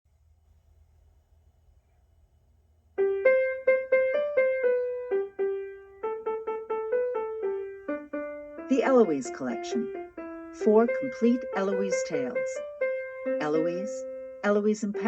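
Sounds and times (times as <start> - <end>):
piano melody: 3.0 - 15.0.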